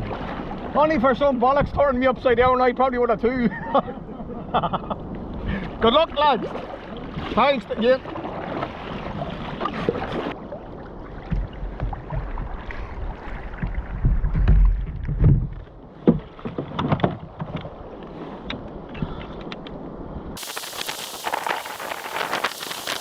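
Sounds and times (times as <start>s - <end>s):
water sloshing around kayak: 0.0s - 0.9s, 5.3s - 18.5s
wind buffeting microphone: 11.2s - 23.0s.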